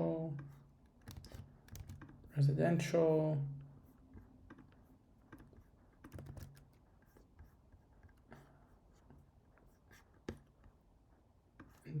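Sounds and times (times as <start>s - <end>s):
computer keyboard keystrokes: 1.0s - 2.2s, 5.3s - 6.8s.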